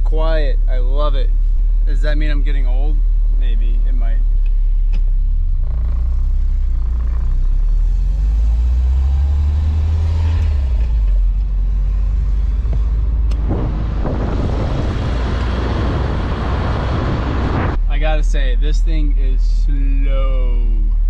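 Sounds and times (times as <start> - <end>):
car engine drone: 0.0 - 21.0
wind and tyre rush: 6.8 - 17.9.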